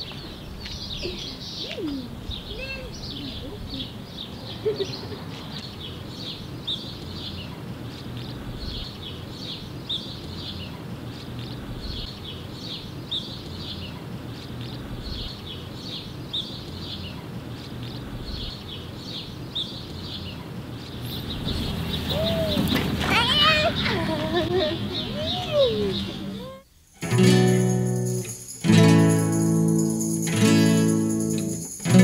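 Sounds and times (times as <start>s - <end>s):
small birds chirping: 0.0s - 32.0s
person speaking: 22.1s - 26.6s.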